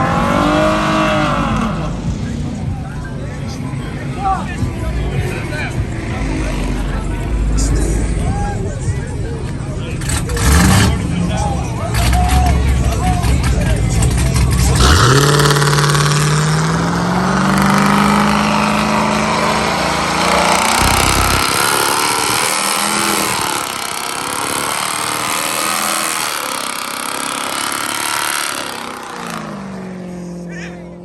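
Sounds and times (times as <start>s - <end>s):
car engine revving: 0.0s - 2.8s, 3.4s - 30.9s
loud rushing noise: 14.7s - 30.0s.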